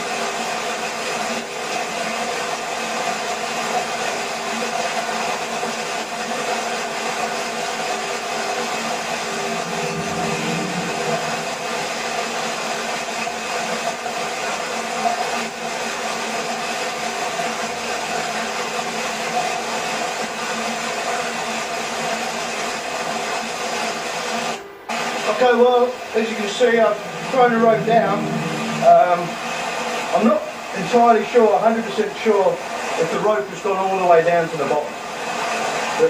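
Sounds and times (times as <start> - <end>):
waterfall roar: 8.9 - 12.2, 26.2 - 30.5.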